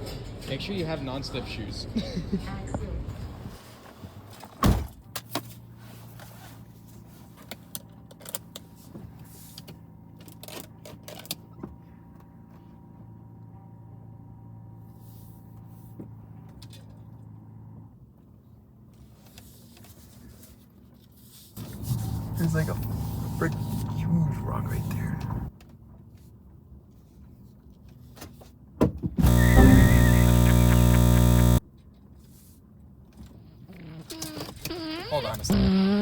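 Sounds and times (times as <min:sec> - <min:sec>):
mechanical hum: 0:29.2 - 0:31.6.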